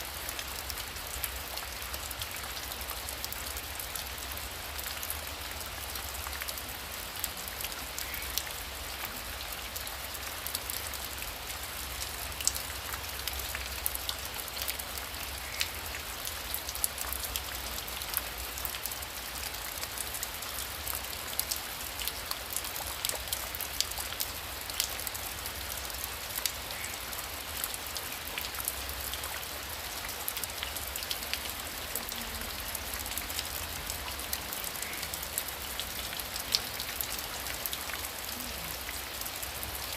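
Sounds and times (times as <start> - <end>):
heavy rain falling: 0.0 - 39.9
raindrops ticking on a surface: 0.0 - 39.9.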